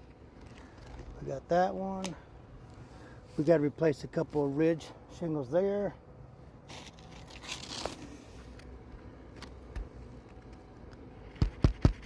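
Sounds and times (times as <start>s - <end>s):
shingles rustling and tearing: 6.7s - 8.2s.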